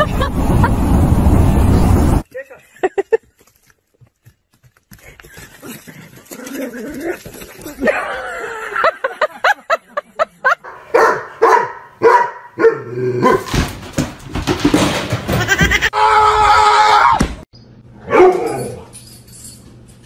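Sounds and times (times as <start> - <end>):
dog barking: 10.6 - 13.5, 18.0 - 18.5.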